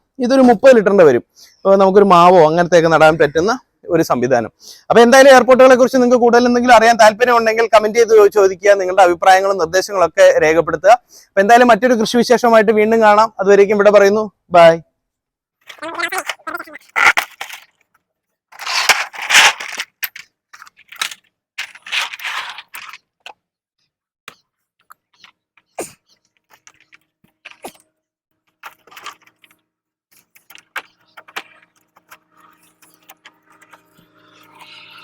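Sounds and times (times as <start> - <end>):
rustling and jangling: 18.5 - 23.0, 25.2 - 27.9, 28.5 - 33.6.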